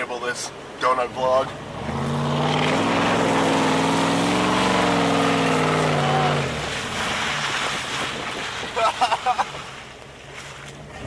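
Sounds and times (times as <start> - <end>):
truck engine revving: 0.9 - 8.4
rushing noise: 2.1 - 7.7.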